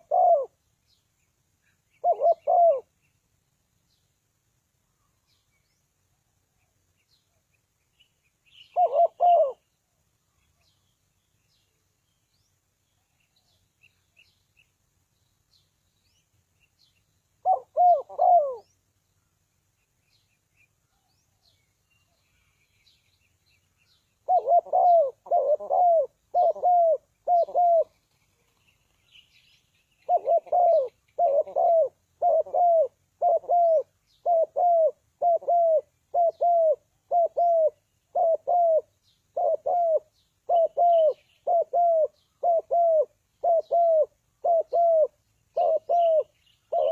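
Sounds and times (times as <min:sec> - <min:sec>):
dove cooing: 0:00.0 - 0:00.6, 0:02.0 - 0:02.9, 0:08.7 - 0:09.6, 0:17.4 - 0:18.8, 0:24.2 - 0:28.0, 0:30.0 - 0:46.9
small birds chirping: 0:00.0 - 0:46.9.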